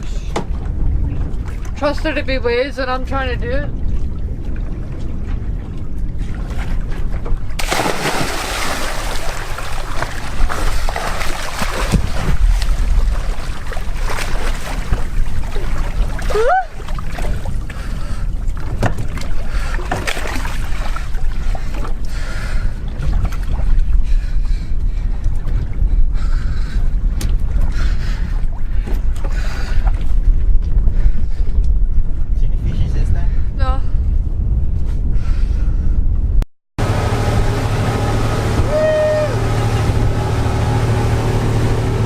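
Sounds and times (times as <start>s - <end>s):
speed boat engine rumble: 0.0s - 34.6s, 36.2s - 42.0s
wind buffeting microphone: 0.0s - 36.4s
water rushing: 7.5s - 17.7s, 36.8s - 42.0s.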